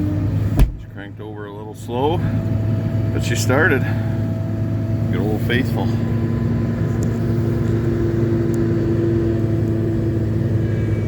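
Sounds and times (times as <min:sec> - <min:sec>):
pickup engine idling: 0:00.0 - 0:08.5.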